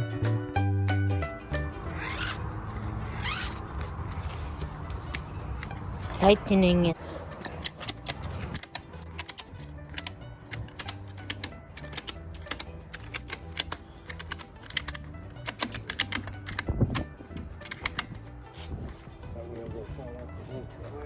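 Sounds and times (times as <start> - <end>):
background music with bass line: 0.0 - 21.0
sharp clicks: 7.3 - 18.2.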